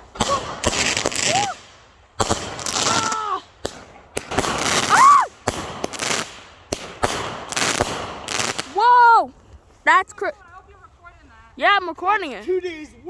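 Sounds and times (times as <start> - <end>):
fireworks bangs and crackling: 0.0 - 9.2
person whooping: 1.2 - 1.6, 2.8 - 3.5, 4.8 - 5.4.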